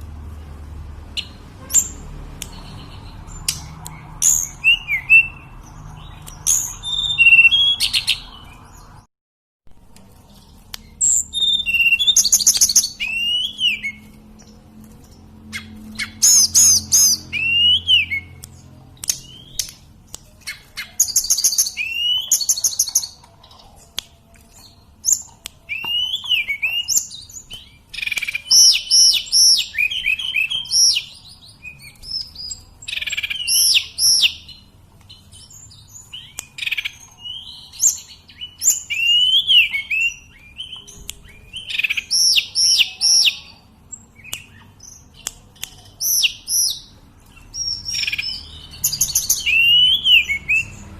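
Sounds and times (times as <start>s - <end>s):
bird singing whistled phrases: 3.9s - 8.7s, 11.0s - 14.0s, 15.6s - 18.4s, 20.5s - 23.0s, 25.7s - 34.5s, 35.4s - 43.5s, 47.6s - 50.8s.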